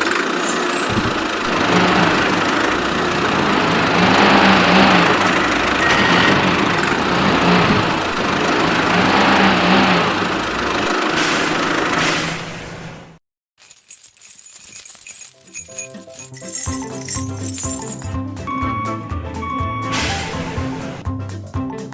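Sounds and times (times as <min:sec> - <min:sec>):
small motor humming: 0:00.0 - 0:12.0.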